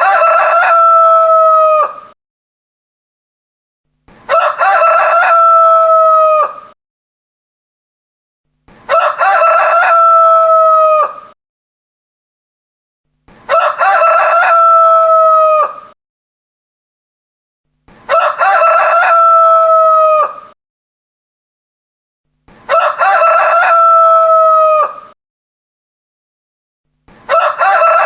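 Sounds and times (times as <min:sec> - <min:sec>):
rooster crowing: 0:00.0 - 0:02.2, 0:04.3 - 0:06.8, 0:08.9 - 0:11.4, 0:13.5 - 0:16.0, 0:18.1 - 0:20.6, 0:22.7 - 0:25.2, 0:27.3 - 0:28.0.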